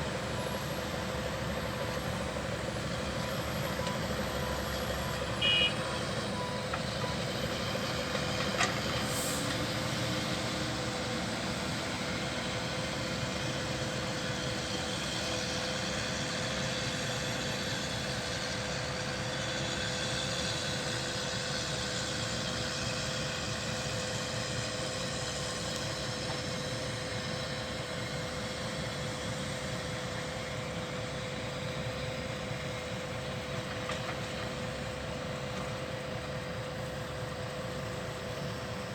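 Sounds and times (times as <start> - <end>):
truck engine hum: 0.0 - 38.9
loud beep: 5.4 - 5.8.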